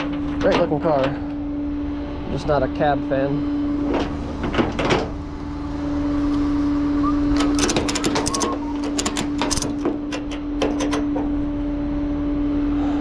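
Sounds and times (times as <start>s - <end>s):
tow truck engine humming: 0.0s - 12.8s
sharp clicks and rattles: 7.4s - 11.5s.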